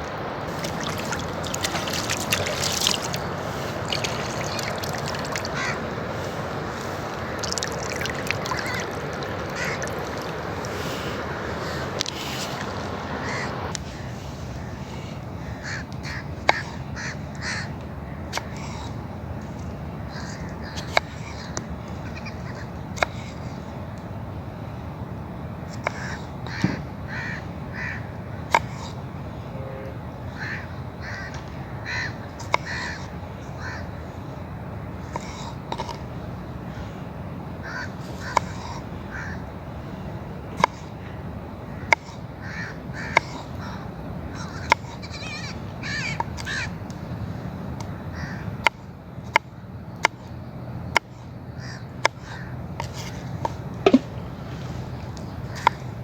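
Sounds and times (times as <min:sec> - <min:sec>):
low background noise: 0:00.0 - 0:56.0
crow-like cawing: 0:00.5 - 0:12.0, 0:12.6 - 0:18.9, 0:20.0 - 0:23.4, 0:25.8 - 0:28.8, 0:30.3 - 0:34.2, 0:36.7 - 0:40.1, 0:40.7 - 0:46.8, 0:48.0 - 0:48.6, 0:51.5 - 0:52.6
sharp clicks or knocks: 0:53.8 - 0:54.1.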